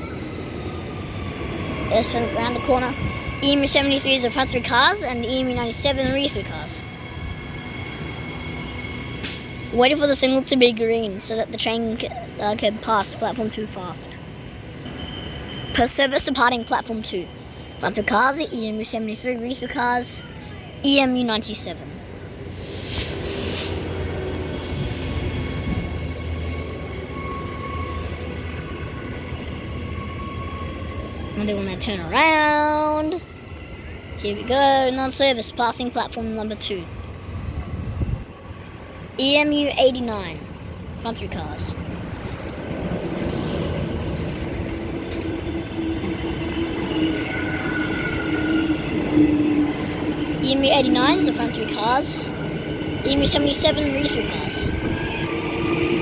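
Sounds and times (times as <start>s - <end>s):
electric train pulling out: 0.0s - 39.2s, 40.2s - 56.0s
short hiss: 22.4s - 23.9s.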